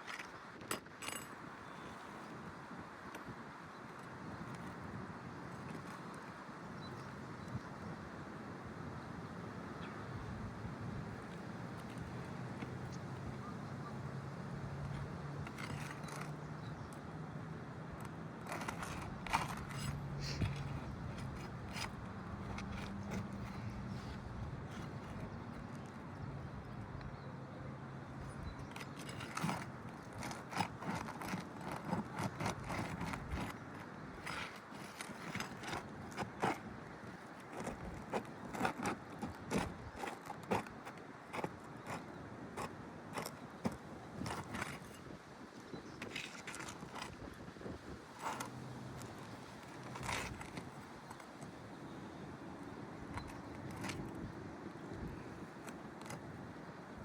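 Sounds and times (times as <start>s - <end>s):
tool scraping under roof shingles: 14.8s - 16.9s, 18.0s - 26.1s, 28.2s - 45.2s, 45.8s - 51.6s, 52.6s - 56.8s.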